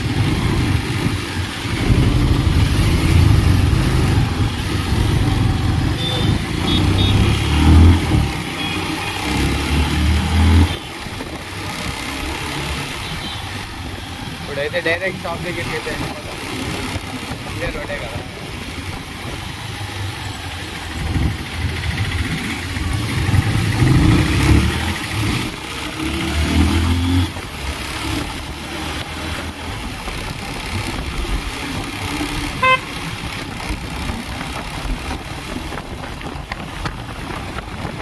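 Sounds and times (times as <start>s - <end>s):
passing vehicle engines: 0.0s - 38.0s
road traffic noise: 0.0s - 38.0s
vehicle horn beep: 6.0s - 7.4s, 8.6s - 9.4s, 32.6s - 33.0s.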